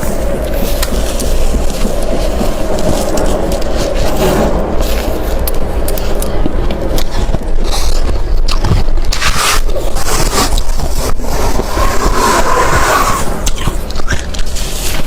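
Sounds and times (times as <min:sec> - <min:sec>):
frost scraping and crunching: 0:00.0 - 0:15.0.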